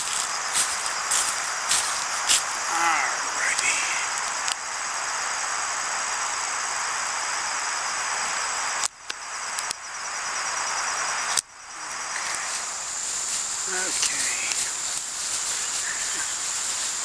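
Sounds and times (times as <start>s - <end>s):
constant hiss: 0.0s - 17.0s
crickets chirping: 0.0s - 17.0s
sharp clicks: 8.8s - 9.8s.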